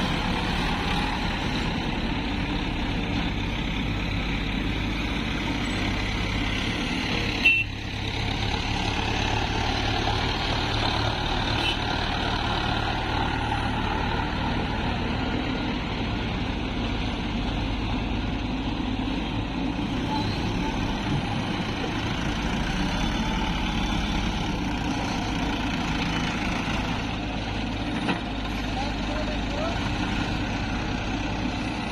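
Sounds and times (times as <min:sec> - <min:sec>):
heavy diesel machinery running: 0:00.0 - 0:31.9.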